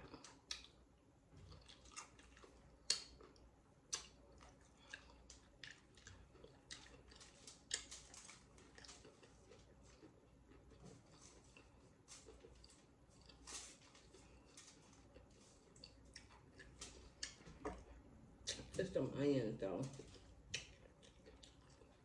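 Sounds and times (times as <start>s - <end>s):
faint chewing with crunches: 0.0s - 18.8s, 19.7s - 22.0s.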